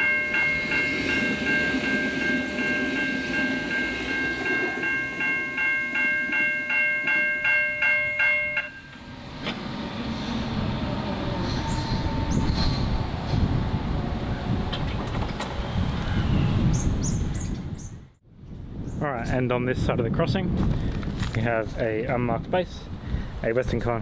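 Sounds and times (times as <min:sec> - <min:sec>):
low rumbling noise: 0:08.1 - 0:21.0.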